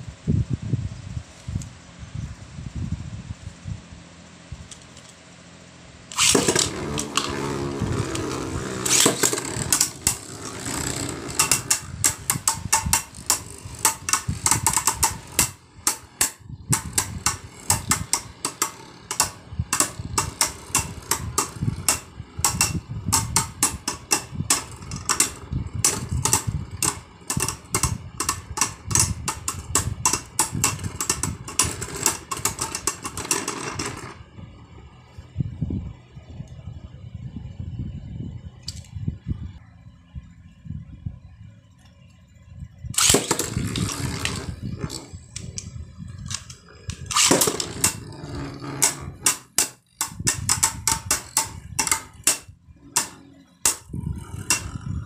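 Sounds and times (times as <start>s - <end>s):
spinning tops clacking together: 6.1s - 34.2s, 43.0s - 54.8s
spinning tops whirring: 6.1s - 34.3s, 43.0s - 55.0s.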